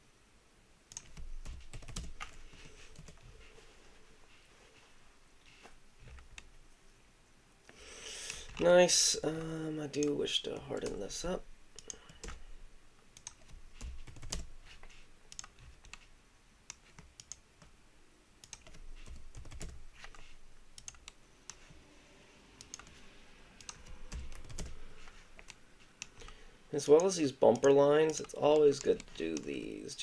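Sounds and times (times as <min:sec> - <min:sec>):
keyboard keys tapping: 0:00.9 - 0:03.3, 0:13.2 - 0:16.1, 0:18.4 - 0:21.7, 0:23.6 - 0:29.6.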